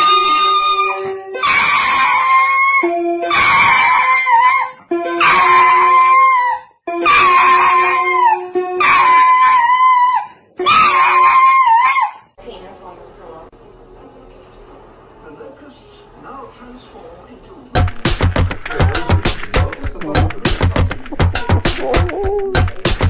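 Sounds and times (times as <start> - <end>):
dog howling: 0.0 - 12.4
music playing: 17.8 - 23.0.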